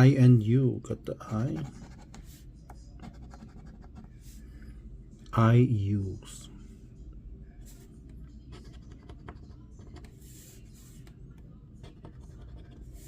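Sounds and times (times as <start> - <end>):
scratching a scratch-off ticket: 1.3 - 4.2, 7.7 - 11.2, 11.8 - 13.0.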